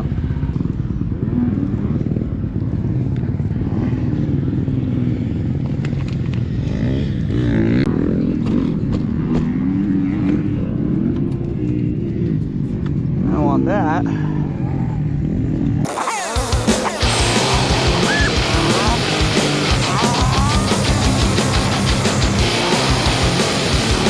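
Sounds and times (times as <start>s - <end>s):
dirt bike engine revving: 15.9s - 24.0s.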